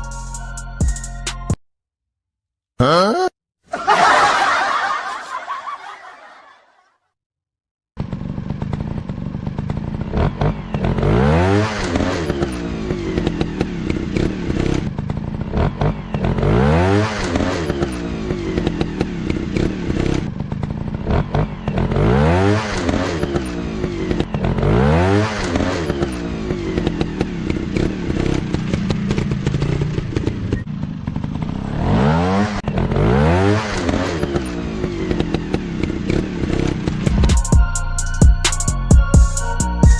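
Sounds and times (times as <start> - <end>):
dirt bike engines revving: 8.1 - 37.2.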